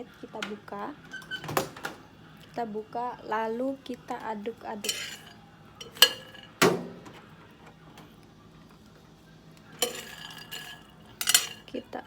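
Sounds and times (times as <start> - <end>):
peanuts being stirred: 4.8 - 6.4, 9.8 - 11.7
roasting dish knocking: 4.8 - 7.2, 9.8 - 11.7.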